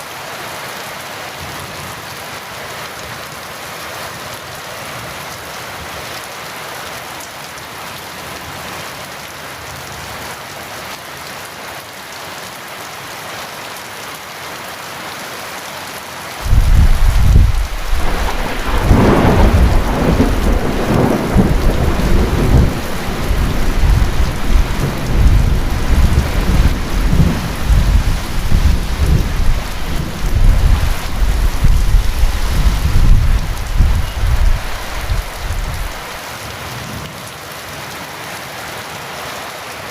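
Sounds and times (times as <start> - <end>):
heavy rain falling: 0.0 - 39.9
thunder rumbling: 16.4 - 36.0.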